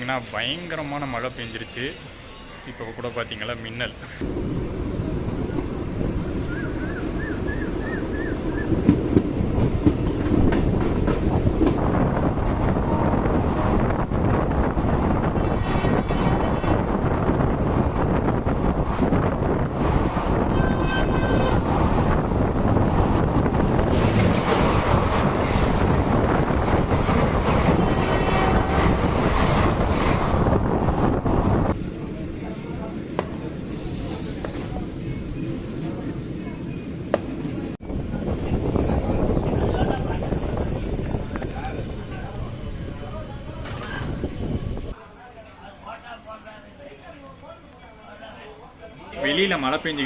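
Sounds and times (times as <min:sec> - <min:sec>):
train rumbling: 0:03.8 - 0:45.0
wind buffeting microphone: 0:04.2 - 0:32.0, 0:36.0 - 0:45.0
train wheels clattering on rails: 0:08.5 - 0:12.0, 0:23.0 - 0:27.9.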